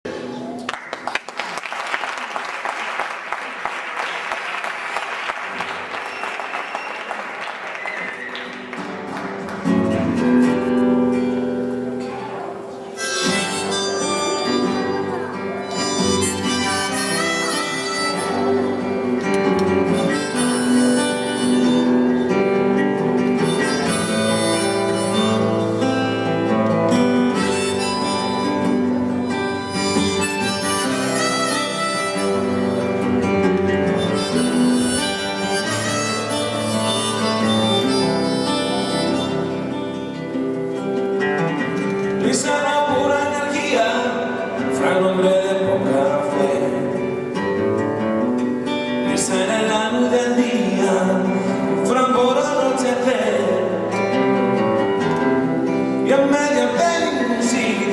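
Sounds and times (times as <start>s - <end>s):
live band playing instrumental: 7.8s - 42.6s.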